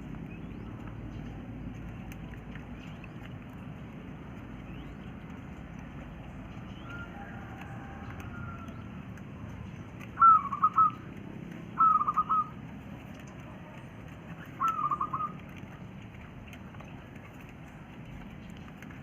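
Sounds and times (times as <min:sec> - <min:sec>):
quail calling: 0:10.1 - 0:11.1, 0:11.7 - 0:12.6, 0:14.5 - 0:15.6.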